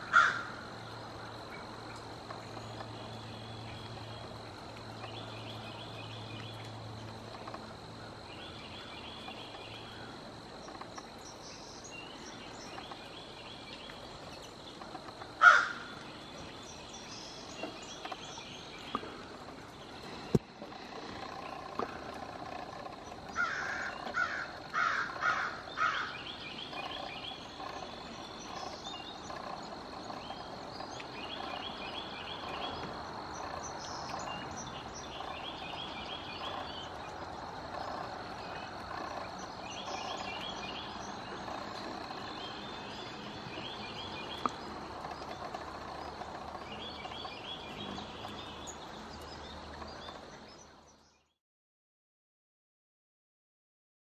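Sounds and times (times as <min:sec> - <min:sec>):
bird calling loudly: 0:00.0 - 0:00.6, 0:15.4 - 0:16.0, 0:23.4 - 0:26.3
insect noise: 0:00.0 - 0:51.2.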